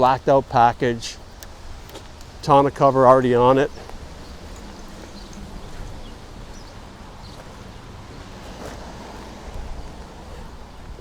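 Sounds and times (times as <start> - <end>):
faint high ticks: 1.2 - 2.4, 3.8 - 6.7
steady low rumble: 1.2 - 11.0.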